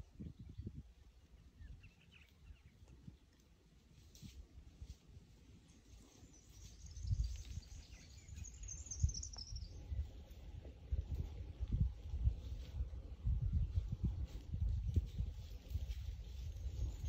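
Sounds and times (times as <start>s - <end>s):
bird chirping in a high trill: 6.1s - 10.1s.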